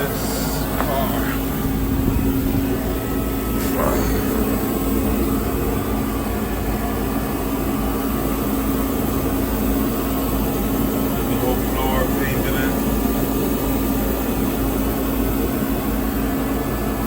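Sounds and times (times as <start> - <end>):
steady background hum: 0.0 - 17.0
low rumble: 1.5 - 6.2.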